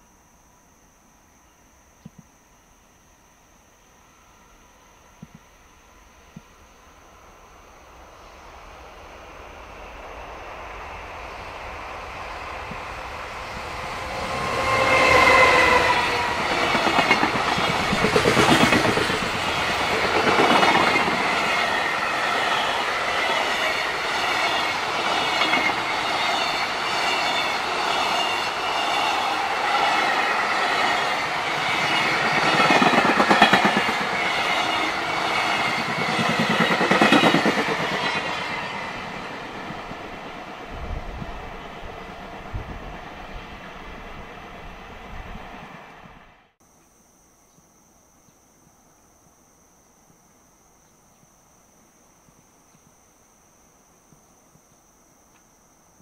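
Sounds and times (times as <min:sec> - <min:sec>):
train wheels clattering: 0:13.5 - 0:39.2.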